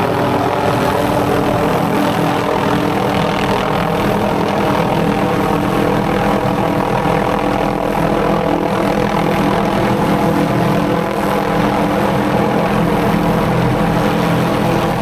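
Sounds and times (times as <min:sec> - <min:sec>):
helicopter rotor and engine drone: 0:00.0 - 0:15.0.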